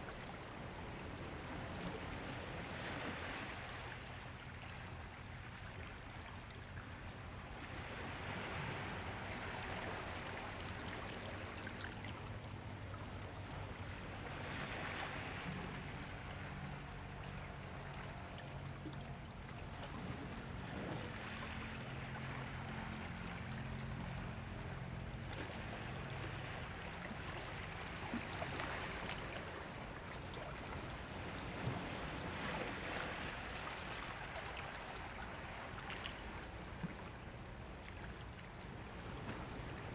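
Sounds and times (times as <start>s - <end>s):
ocean waves washing in: 38.5s - 39.9s.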